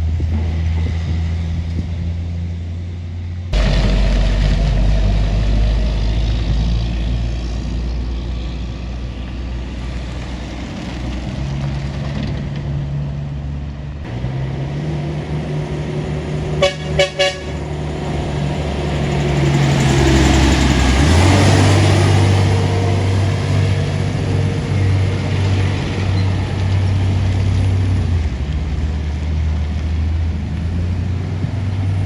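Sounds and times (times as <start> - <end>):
heavy truck engine under load: 3.6 - 32.0
vehicle horn toots: 16.6 - 17.7.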